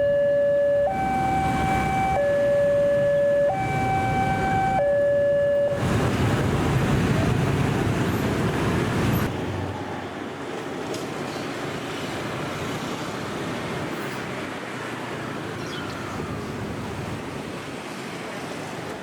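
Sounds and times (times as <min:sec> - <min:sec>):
train wheels rumbling on rail: 0:05.8 - 0:13.8.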